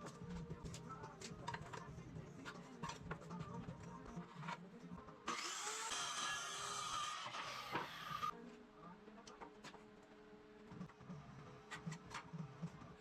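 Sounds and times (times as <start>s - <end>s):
harsh steady power tool: 5.3s - 8.3s.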